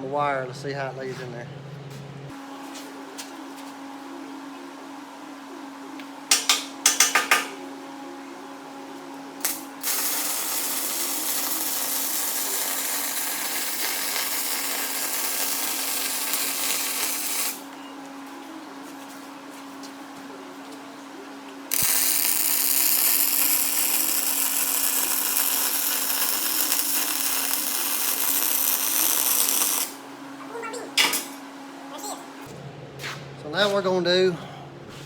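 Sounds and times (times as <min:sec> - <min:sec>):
welder arc crackling: 0:09.4 - 0:17.7, 0:21.7 - 0:30.0.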